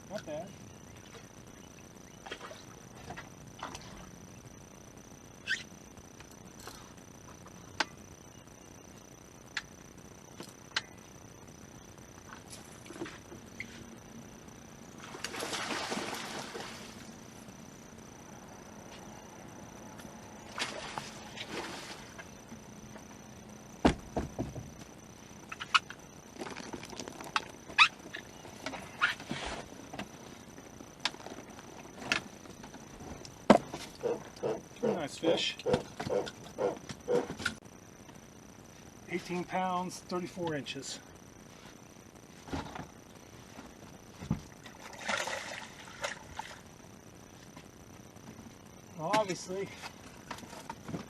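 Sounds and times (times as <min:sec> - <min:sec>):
water splash: 0:15.1 - 0:17.0, 0:44.8 - 0:46.6
heavy thump in boat: 0:23.8 - 0:24.7.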